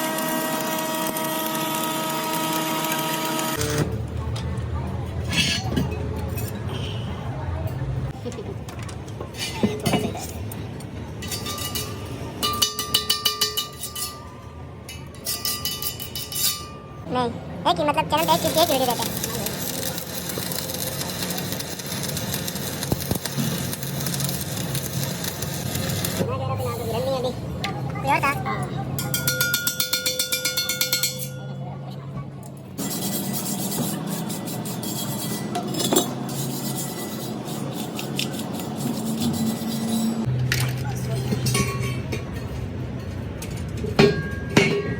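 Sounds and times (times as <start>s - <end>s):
metal clinking and scraping: 5.2s - 6.8s, 9.2s - 17.0s, 32.7s - 44.9s
hammer striking metal wheel rim: 43.9s - 44.9s.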